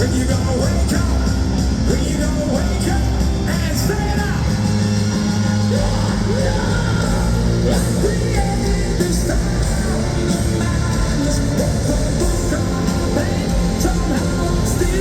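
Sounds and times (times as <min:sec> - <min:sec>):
hard rock band playing: 0:00.0 - 0:15.0.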